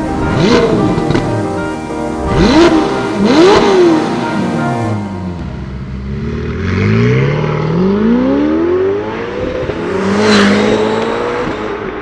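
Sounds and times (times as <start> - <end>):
sports car engine accelerating: 0.0 - 12.0.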